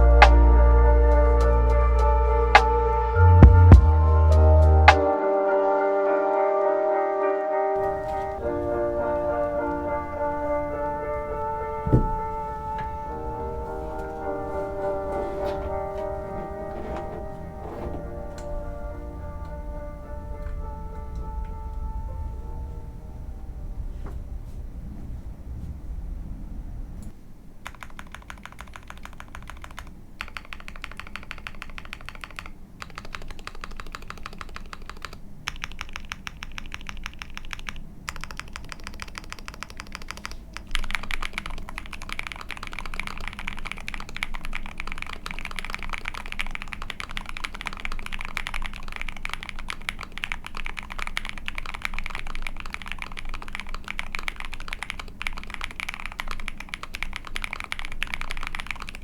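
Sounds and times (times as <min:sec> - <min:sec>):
mechanical keyboard typing: 0:27.6 - 0:59.0.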